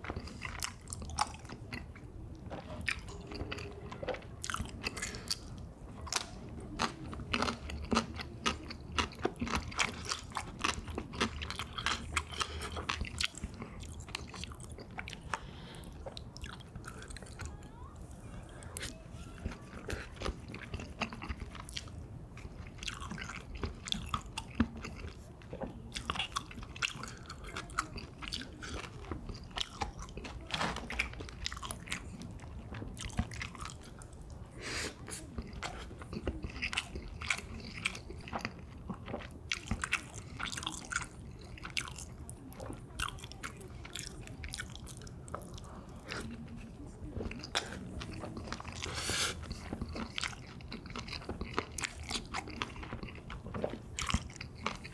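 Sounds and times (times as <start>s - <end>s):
cartilage crunching: 0.0s - 17.5s, 35.0s - 54.9s
wet chewing: 0.0s - 54.9s.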